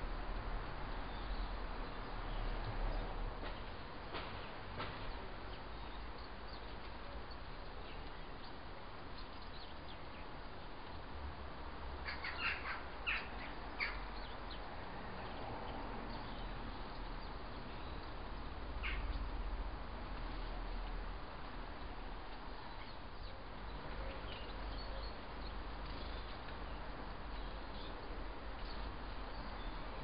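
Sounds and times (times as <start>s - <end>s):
high bird calls: 12.0s - 14.6s, 16.2s - 19.3s.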